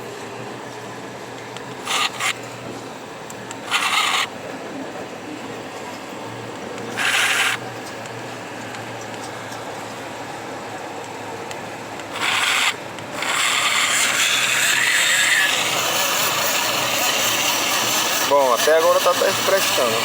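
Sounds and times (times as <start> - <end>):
mini blender running: 1.8 - 2.4, 3.6 - 4.3, 7.0 - 7.7, 12.1 - 20.0.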